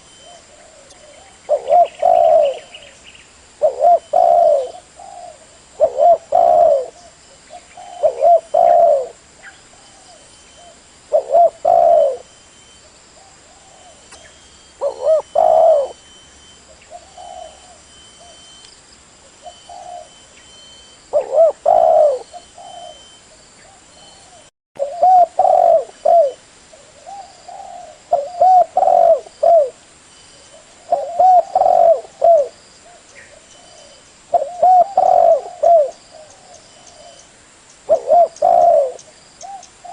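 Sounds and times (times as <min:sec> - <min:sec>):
dove cooing: 0:00.0 - 0:03.0, 0:03.6 - 0:18.6, 0:19.4 - 0:20.2, 0:21.1 - 0:29.8, 0:30.4 - 0:37.2, 0:37.9 - 0:39.9.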